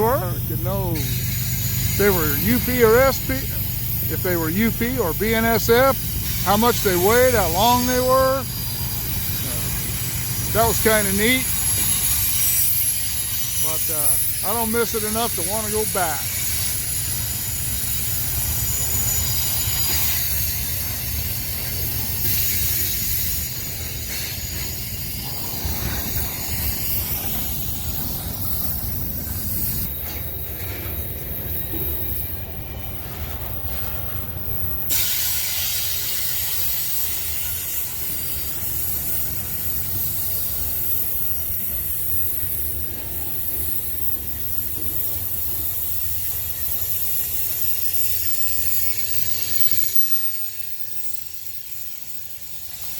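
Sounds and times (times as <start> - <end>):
hiss: 0.0 - 52.9
train wheels rumbling on rail: 0.0 - 52.9.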